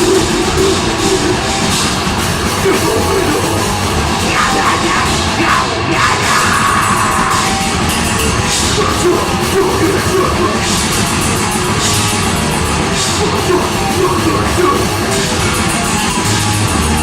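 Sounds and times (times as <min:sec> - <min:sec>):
loud distorted metal music: 0:00.0 - 0:17.0
person yelling vocals: 0:02.6 - 0:07.7, 0:13.2 - 0:15.1.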